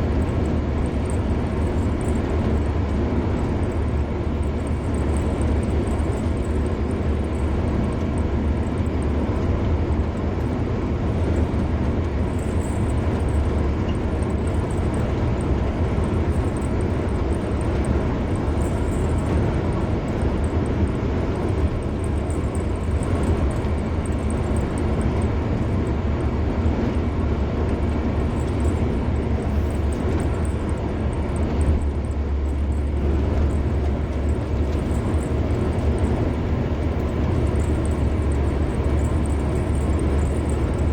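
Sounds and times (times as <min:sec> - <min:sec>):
car engine rumble: 0:00.0 - 0:40.9
tyre and road noise: 0:00.0 - 0:40.9.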